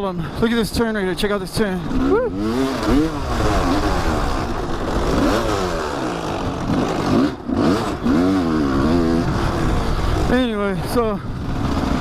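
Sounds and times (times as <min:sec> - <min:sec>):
dirt bike engine revving: 0:01.3 - 0:12.0.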